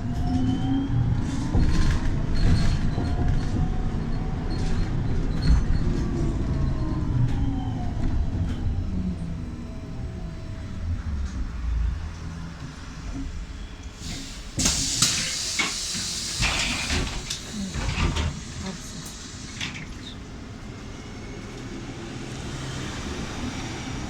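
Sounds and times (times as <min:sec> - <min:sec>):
trolleybus rumble: 0:00.0 - 0:24.0
clunks: 0:12.6 - 0:20.2
air release hiss: 0:14.0 - 0:19.7.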